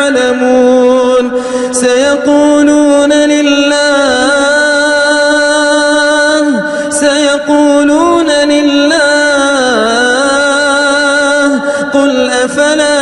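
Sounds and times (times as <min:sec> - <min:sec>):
man chanting recitation: 0:00.0 - 0:13.0.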